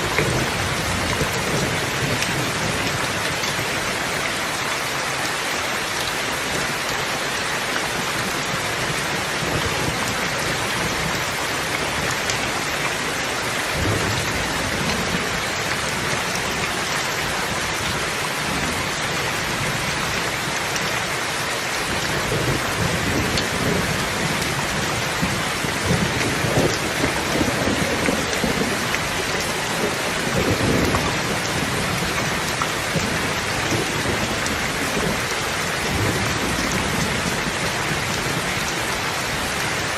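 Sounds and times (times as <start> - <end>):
heavy rain hissing: 0.0 - 39.9
thunder rumbling: 22.1 - 38.6.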